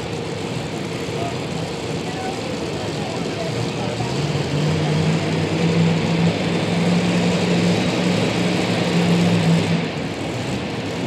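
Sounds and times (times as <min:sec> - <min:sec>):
truck engine running loudly: 0:00.0 - 0:11.0.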